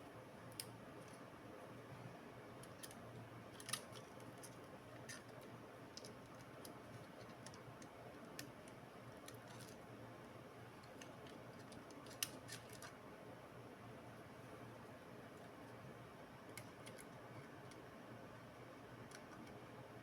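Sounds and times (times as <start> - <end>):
low steady hum: 0.0 - 20.0
faint light clicks and ticks: 10.8 - 13.0, 19.0 - 19.6.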